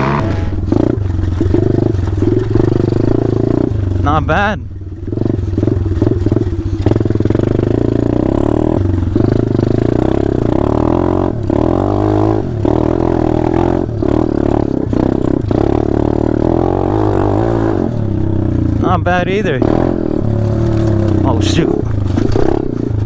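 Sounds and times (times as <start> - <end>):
small motorbike engine revving: 0.0 - 3.7, 19.5 - 23.0.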